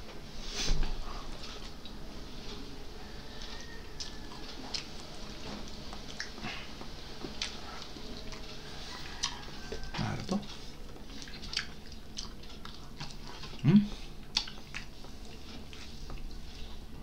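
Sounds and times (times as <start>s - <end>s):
chewing with mouth clicks: 3.3s - 16.9s
person humming briefly: 13.6s - 14.0s.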